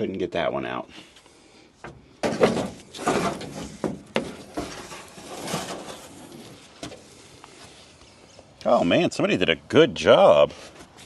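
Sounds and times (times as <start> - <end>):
rustling scrape: 2.6 - 8.0.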